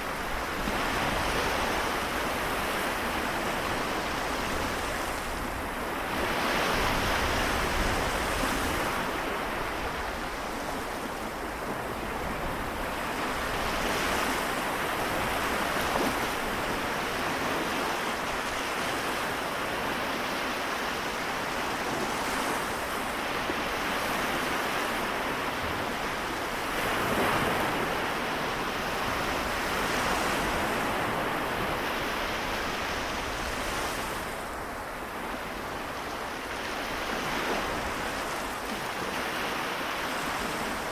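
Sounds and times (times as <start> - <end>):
small waves washing onto shore: 0.0 - 40.9.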